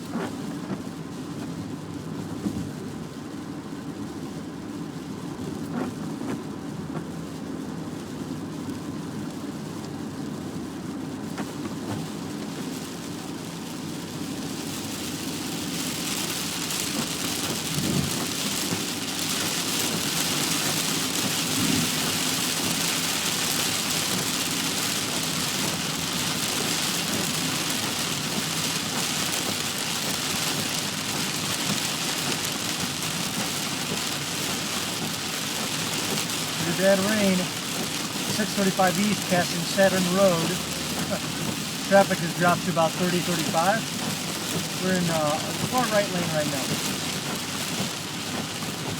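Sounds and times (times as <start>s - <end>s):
heavy rain on a moving car: 0.0s - 48.9s
low rumble of road noise: 0.0s - 48.9s
tyre spray hiss: 36.5s - 46.9s.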